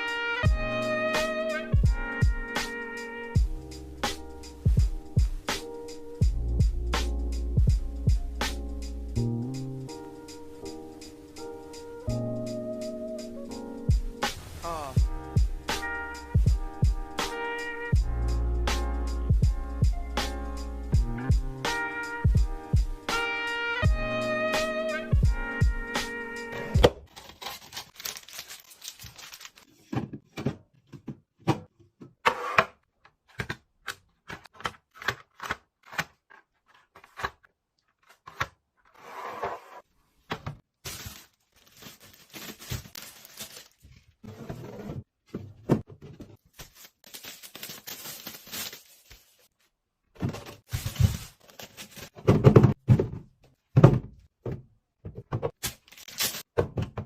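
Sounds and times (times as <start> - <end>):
packaging rustling: 27.0 - 29.8, 40.7 - 44.2, 46.3 - 49.5, 50.4 - 52.2, 55.6 - 56.5.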